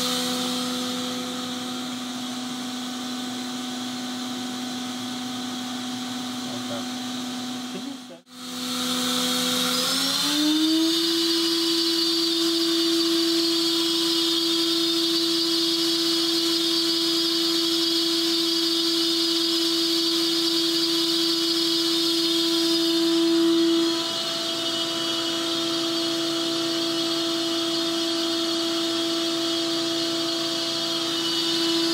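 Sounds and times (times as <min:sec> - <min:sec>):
machine spindle whining: 0:19.8 - 0:31.9.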